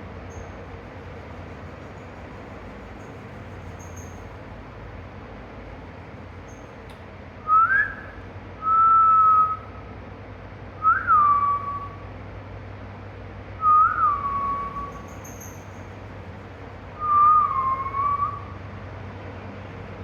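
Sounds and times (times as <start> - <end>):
parrot whistling: 13.7 - 15.8, 17.0 - 18.5.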